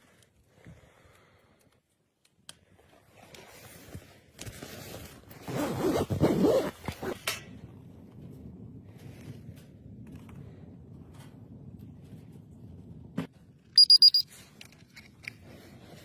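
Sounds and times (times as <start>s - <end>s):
zipper being pulled: 5.4s - 7.2s.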